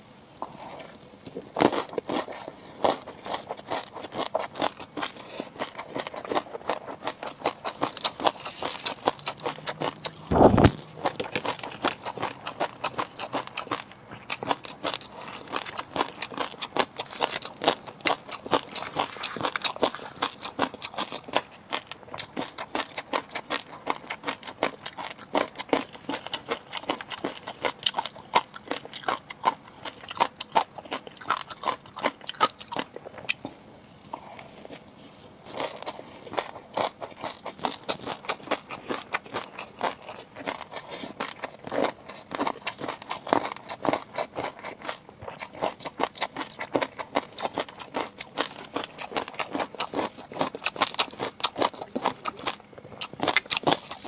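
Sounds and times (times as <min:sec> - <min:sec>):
crunchy chewing: 0:00.2 - 0:54.0
heavy thump: 0:10.3 - 0:10.8.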